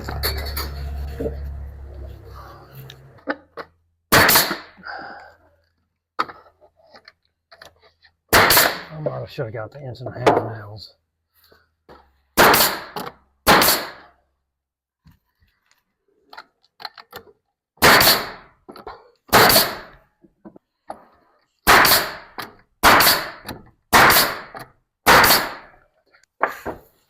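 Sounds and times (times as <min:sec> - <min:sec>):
nail gun firing into wood: 0:04.1 - 0:04.8, 0:08.3 - 0:08.9, 0:12.4 - 0:14.1, 0:17.8 - 0:18.5, 0:19.3 - 0:20.0, 0:21.6 - 0:25.8.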